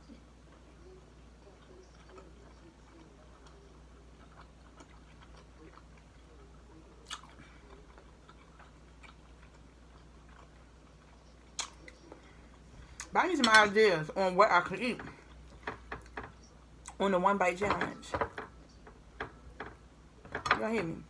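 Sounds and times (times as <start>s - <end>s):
chewing a sandwich: 0.0s - 13.2s, 15.1s - 17.0s
wet mouth clicks and smacks: 11.6s - 12.0s.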